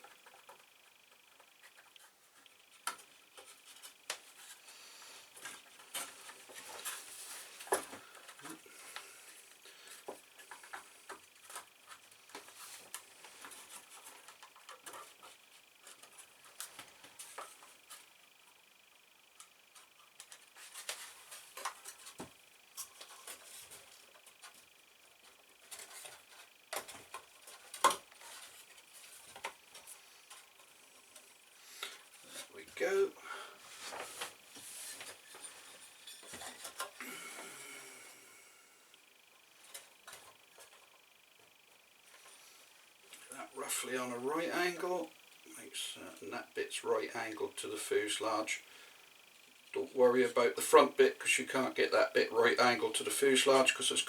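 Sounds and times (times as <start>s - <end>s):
soft rustle: 33.6s - 36.8s.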